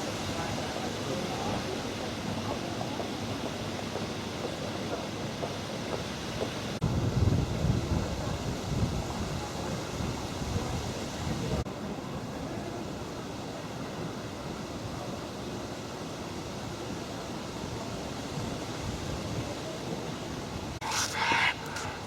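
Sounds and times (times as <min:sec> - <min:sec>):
steady rushing hiss: 0:00.0 - 0:22.0
wind buffeting microphone: 0:06.8 - 0:11.6.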